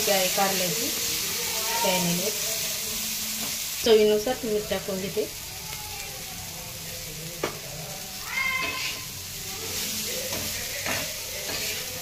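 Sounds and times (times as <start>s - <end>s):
vegetables sizzling in oil: 0.0s - 12.0s
metal spatula scraping: 8.5s - 12.0s.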